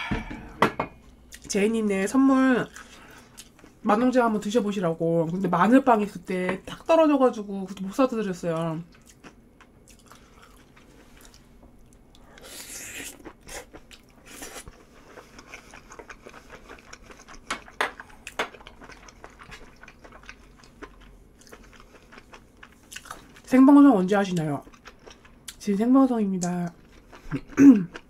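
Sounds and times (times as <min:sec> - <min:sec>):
person chewing food: 0:08.9 - 0:23.5, 0:24.6 - 0:25.6, 0:26.4 - 0:28.0.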